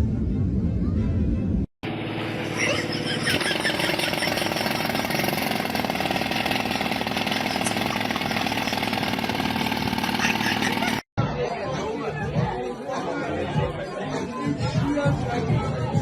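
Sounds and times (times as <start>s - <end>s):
heavy machine engine running: 1.8s - 11.0s
fast even rattling: 3.1s - 11.0s.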